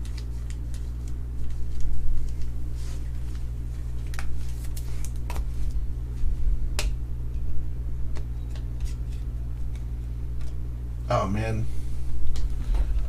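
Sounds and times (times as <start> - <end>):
cards clicking and rustling: 0.0 - 2.5, 4.0 - 5.5
low hum: 0.0 - 13.0.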